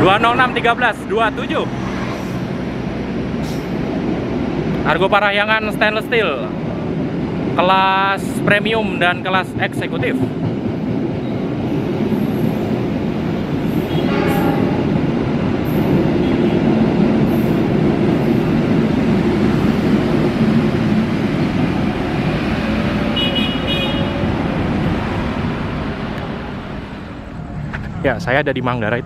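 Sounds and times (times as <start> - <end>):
train wheels rumbling on rail: 0.0 - 29.0
train horn toot: 13.9 - 14.9, 23.0 - 24.4.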